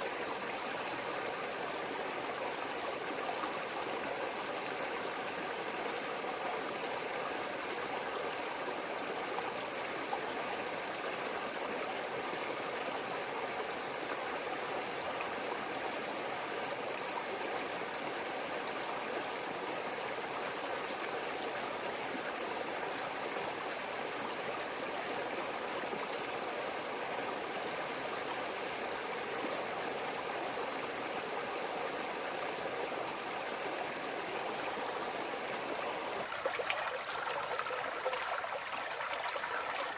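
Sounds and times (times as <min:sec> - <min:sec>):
creek water flowing over rocks: 0:00.0 - 0:39.9.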